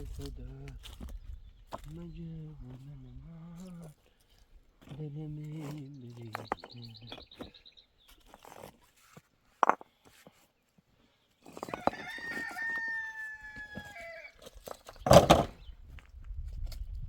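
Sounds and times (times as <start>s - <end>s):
rooster crowing: 11.7s - 14.4s.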